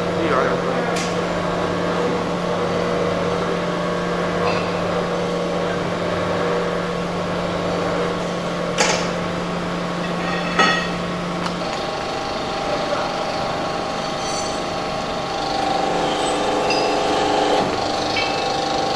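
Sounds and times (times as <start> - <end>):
machine motor hum: 15.0 - 18.9.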